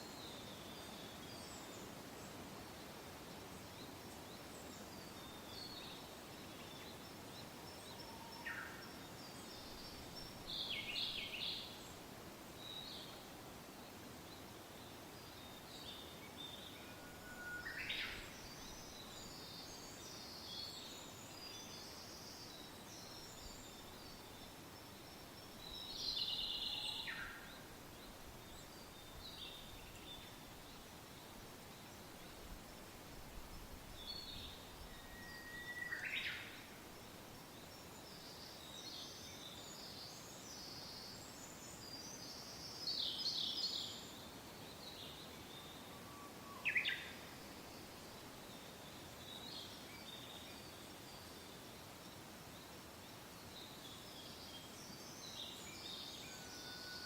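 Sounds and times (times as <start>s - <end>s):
soft wind: 0.0s - 57.0s.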